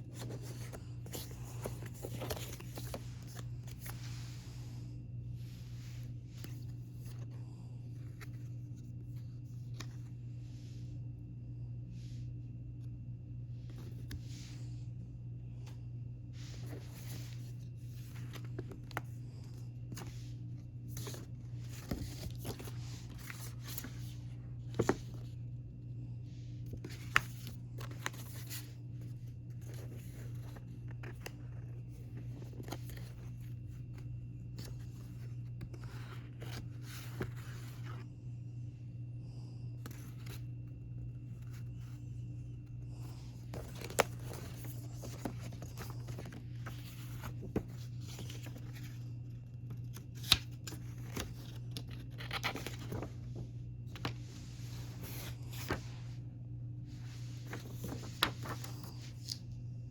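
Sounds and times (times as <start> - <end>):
paper and plastic packaging rustling: 0.0 - 4.4, 16.4 - 25.4, 42.8 - 56.0, 57.0 - 59.5.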